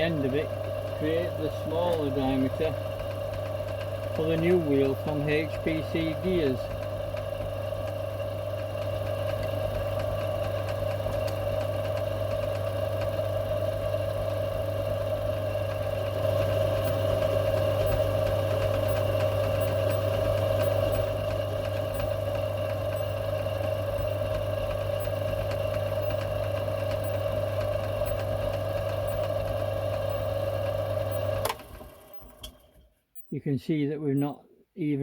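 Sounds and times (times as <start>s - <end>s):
metal lathe cutting steel: 3.8s - 6.7s, 15.8s - 31.5s.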